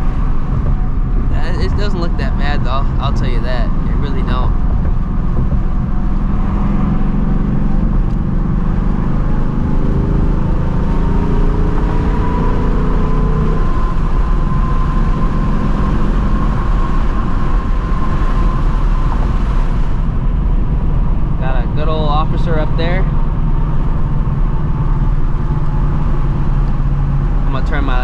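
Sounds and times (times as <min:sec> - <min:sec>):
car engine exhaust while driving: 0:00.0 - 0:28.0.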